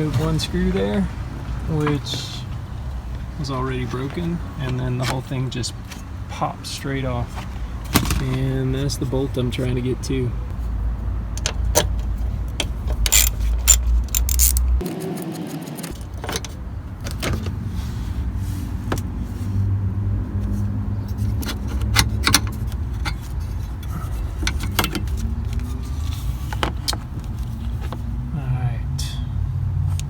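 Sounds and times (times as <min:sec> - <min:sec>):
metallic clicks of socket wrench: 0:13.1 - 0:14.8.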